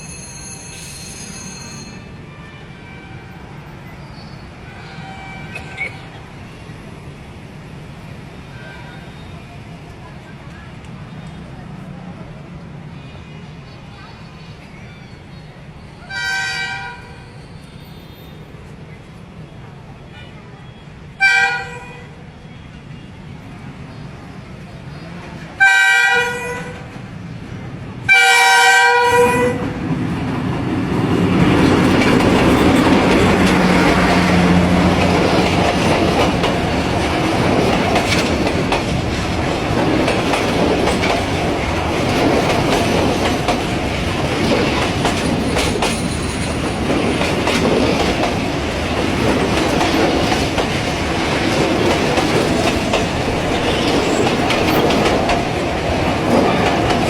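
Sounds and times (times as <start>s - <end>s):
train rumbling on track: 0.0s - 57.0s
train horn blasts: 4.6s - 5.8s, 16.1s - 17.4s, 21.2s - 22.2s, 25.6s - 26.8s, 28.1s - 29.8s
wheels clattering over rails: 30.4s - 57.0s.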